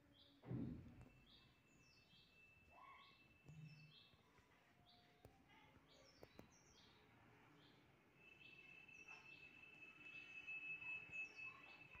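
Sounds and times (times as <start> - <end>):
faint steady high tone: 8.5 - 12.0.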